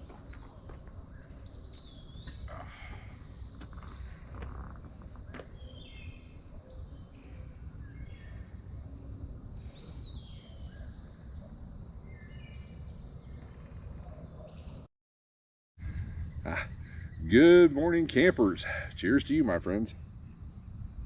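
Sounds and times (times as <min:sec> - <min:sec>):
insect hum: 0:00.0 - 0:14.9, 0:15.8 - 0:21.0
songbirds singing: 0:00.0 - 0:14.9.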